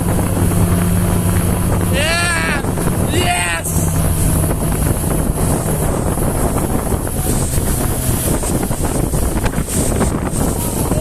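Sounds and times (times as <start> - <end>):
motorboat engine humming: 0.0 - 11.0
water rushing: 0.0 - 11.0
wind buffeting microphone: 0.0 - 11.0.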